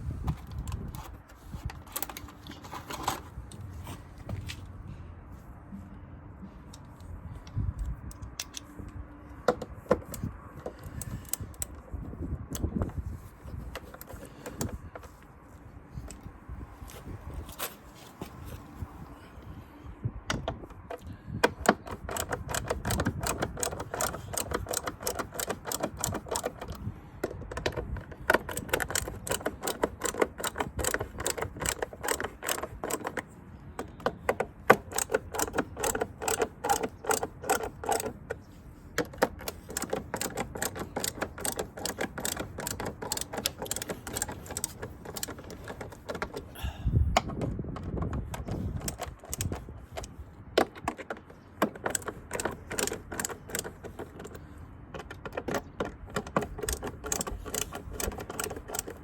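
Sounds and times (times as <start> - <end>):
mechanical clicking and rattling: 6.7 - 15.2, 20.3 - 46.6, 47.2 - 59.0.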